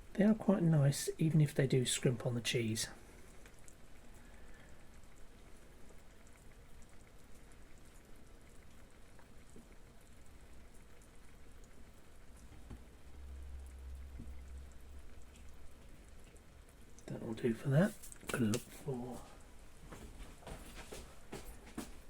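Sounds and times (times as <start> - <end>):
pan simmering and bubbling: 0.0 - 22.0
light ticks and patter: 0.1 - 22.0
low rumble: 12.8 - 16.2.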